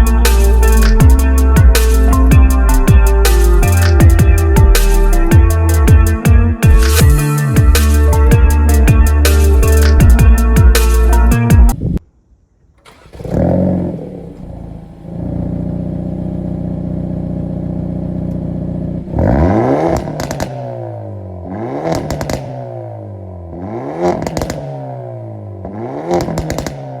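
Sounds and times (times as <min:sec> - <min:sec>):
engine revving: 0:00.0 - 0:11.3, 0:12.8 - 0:27.0
exhaust crackles and pops: 0:12.6 - 0:20.8, 0:21.8 - 0:22.7, 0:24.1 - 0:24.7, 0:26.0 - 0:26.9
car engine starting and idling: 0:12.6 - 0:27.0.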